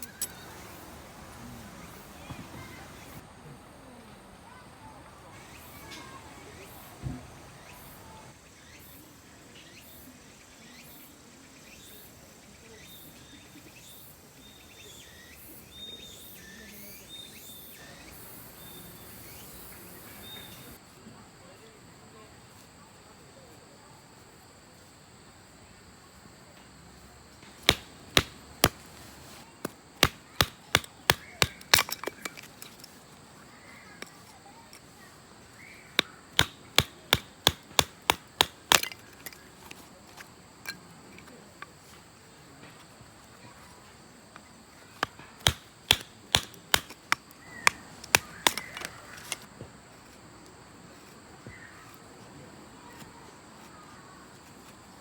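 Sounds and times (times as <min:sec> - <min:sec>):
sharp wooden knocks: 0:27.6 - 0:29.0, 0:30.0 - 0:32.4, 0:36.0 - 0:39.4, 0:45.0 - 0:48.9.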